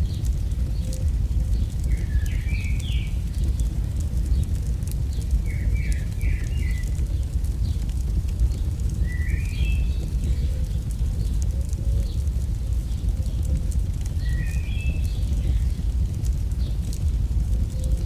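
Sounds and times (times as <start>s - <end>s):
campfire crackling: 0.0s - 18.0s
steady low rumble: 0.0s - 18.0s
bird chirping: 1.9s - 3.8s.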